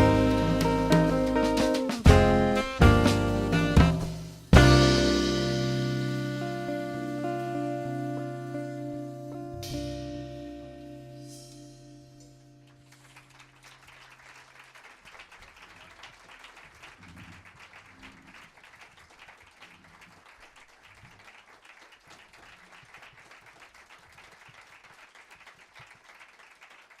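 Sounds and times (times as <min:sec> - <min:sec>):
band's low note: 0:00.0 - 0:13.6
audience applauding: 0:12.7 - 0:27.0.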